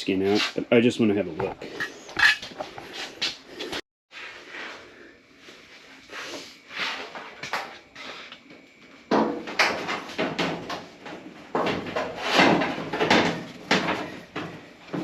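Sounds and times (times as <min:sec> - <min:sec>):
sheet metal clatter: 0:09.1 - 0:15.0
sheet metal scraping and knocking: 0:09.1 - 0:15.0.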